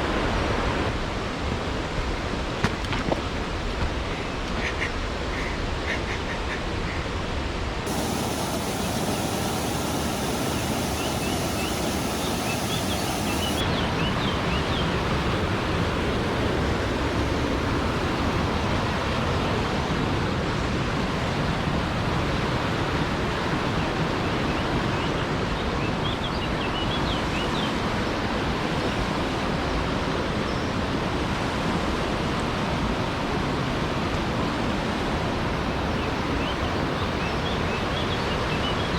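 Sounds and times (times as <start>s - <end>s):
waterfall rushing: 7.9s - 14.1s.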